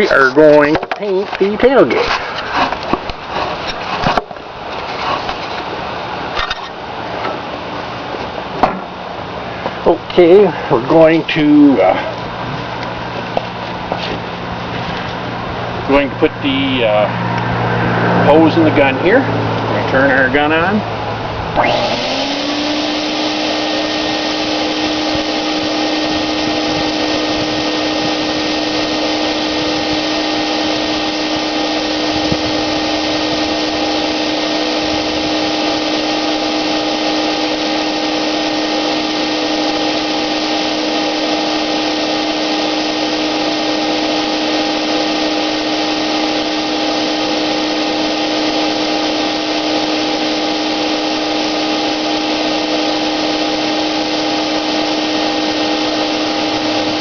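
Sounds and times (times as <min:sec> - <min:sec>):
paint sprayer motor whining: 0:21.5 - 0:57.0.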